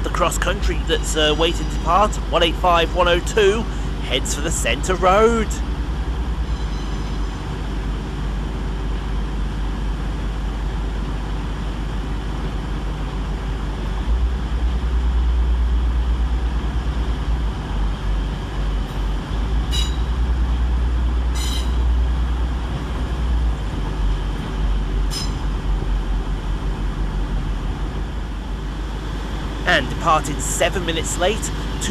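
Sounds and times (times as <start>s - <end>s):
diesel train engine drone: 0.0s - 31.9s
high-pitched squeals: 19.6s - 20.2s, 21.3s - 22.0s.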